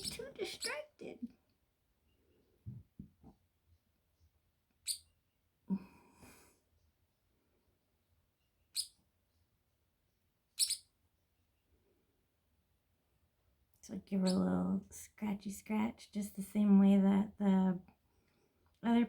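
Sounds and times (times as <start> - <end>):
parrotlets chirping: 0.0 - 0.8, 4.8 - 5.1, 8.7 - 9.0, 10.6 - 10.9.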